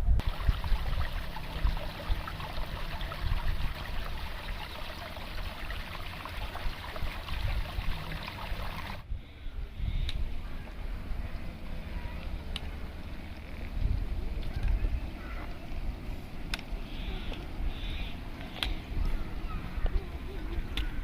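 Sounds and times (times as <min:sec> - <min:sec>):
stream flowing: 0:00.2 - 0:09.0.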